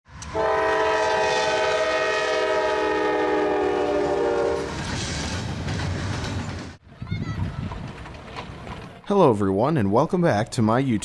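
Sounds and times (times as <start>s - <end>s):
steam locomotive chime whistle: 0.3s - 4.7s.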